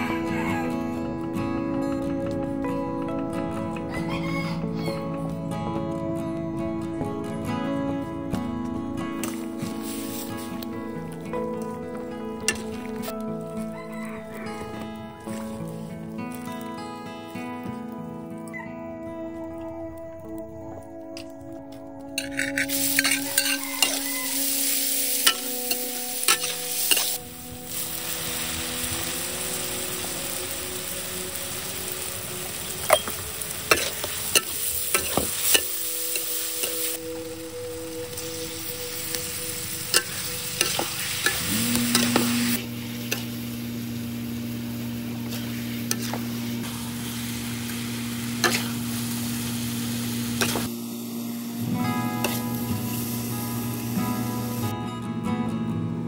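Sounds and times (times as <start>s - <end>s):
food sizzling in a wok: 9.2s - 11.1s, 12.4s - 16.7s, 22.2s - 54.7s
metal spatula scraping a wok: 22.2s - 27.2s, 33.7s - 37.0s, 45.3s - 46.8s, 48.4s - 48.9s, 50.4s - 50.7s
steady low hum: 25.5s - 55.0s.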